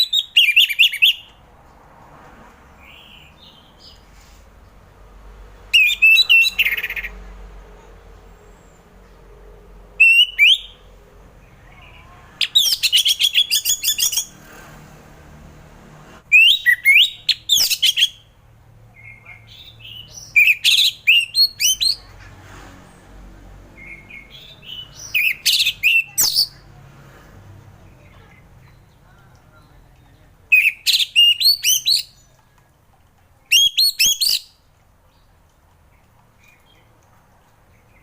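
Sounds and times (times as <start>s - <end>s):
thrush singing whistled notes: 5.7s - 7.1s, 10.0s - 10.9s, 16.3s - 18.3s, 19.9s - 22.0s, 33.5s - 34.6s.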